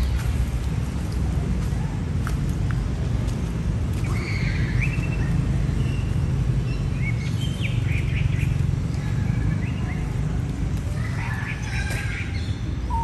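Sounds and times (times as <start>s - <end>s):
high bird chirps: 11.3s - 13.0s.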